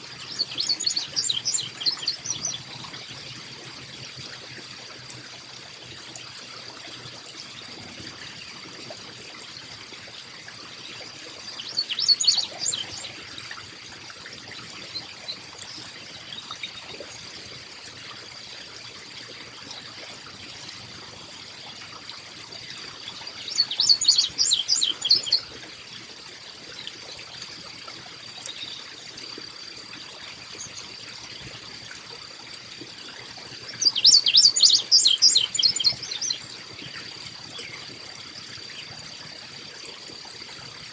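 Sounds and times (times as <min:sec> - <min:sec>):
water trickling: 0:00.0 - 0:40.9
chickadee calling: 0:00.3 - 0:02.8, 0:11.5 - 0:13.2, 0:23.4 - 0:25.4, 0:33.8 - 0:36.4.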